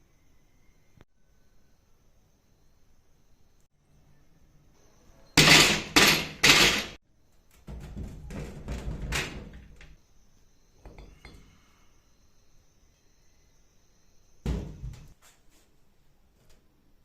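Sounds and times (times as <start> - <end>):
metal parts banging: 5.4 - 7.0
metal parts clattering: 5.4 - 7.0.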